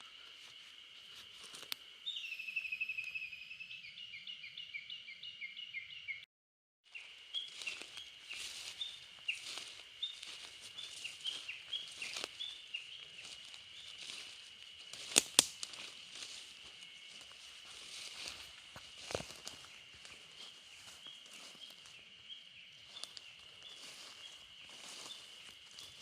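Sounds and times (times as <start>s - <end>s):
small birds chirping: 6.9s - 26.0s.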